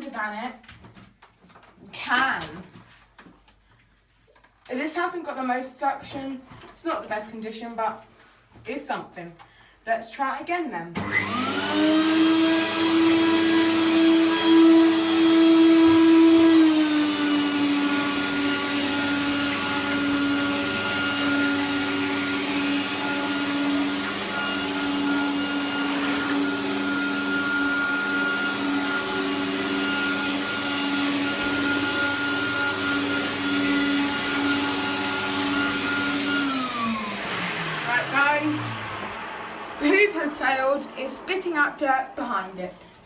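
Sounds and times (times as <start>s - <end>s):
vacuum cleaner running: 11.0s - 42.9s.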